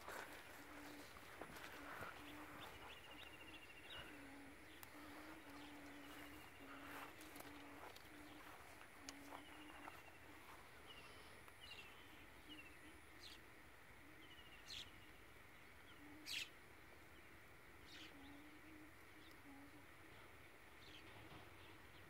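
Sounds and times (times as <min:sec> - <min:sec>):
bird chirping: 0:00.0 - 0:19.7
faint low hum: 0:00.0 - 0:22.0
dry vine stems crackling: 0:03.9 - 0:10.5.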